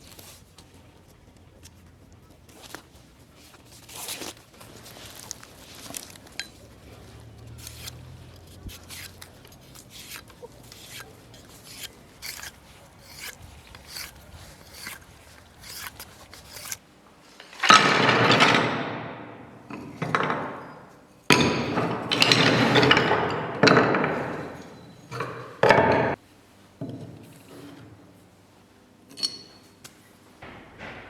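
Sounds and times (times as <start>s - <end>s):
hand tool rasping wood: 6.6s - 16.8s.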